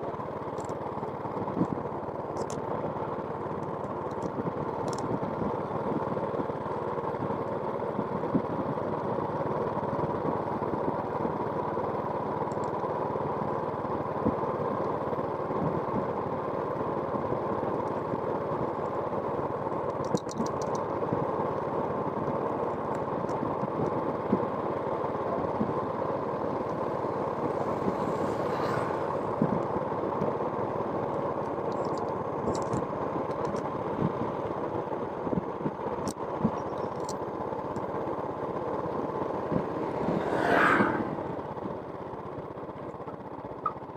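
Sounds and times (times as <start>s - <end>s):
small engine running: 0.0s - 43.9s.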